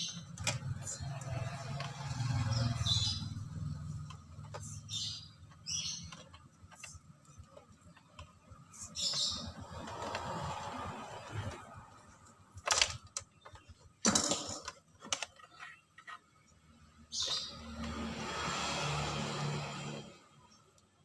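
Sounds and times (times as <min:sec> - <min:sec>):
tools clicking and clacking: 0:12.6 - 0:16.3.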